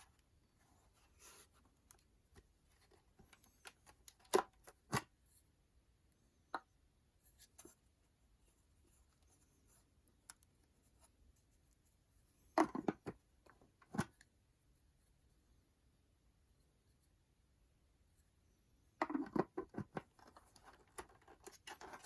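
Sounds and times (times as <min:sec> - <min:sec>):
clicks and taps of handled objects: 0:12.6 - 0:14.3, 0:19.0 - 0:22.0.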